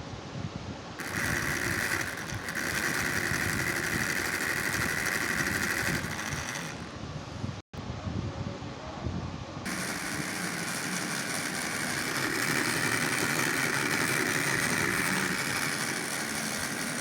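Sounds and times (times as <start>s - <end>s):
small motor whine: 1.0s - 7.0s, 9.7s - 17.0s.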